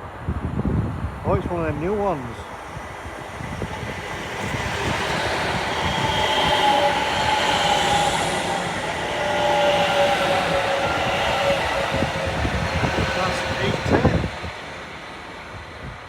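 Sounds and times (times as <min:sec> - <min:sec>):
diesel train passing: 0:00.0 - 0:16.0.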